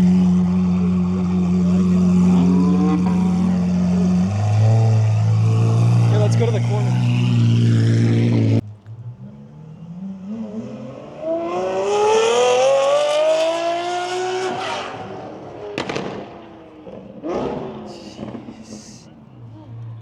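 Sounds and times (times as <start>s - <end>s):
car engine accelerating: 0.0s - 20.0s
exhaust cracks: 15.0s - 19.0s.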